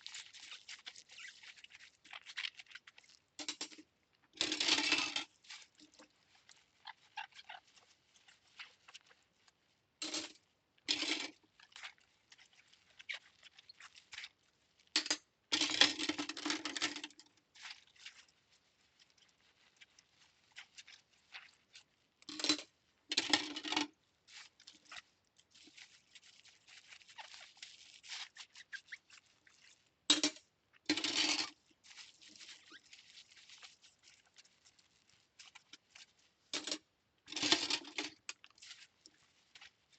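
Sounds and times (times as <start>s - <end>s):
scrubbing scratches: 23.2s - 29.9s, 31.0s - 36.5s.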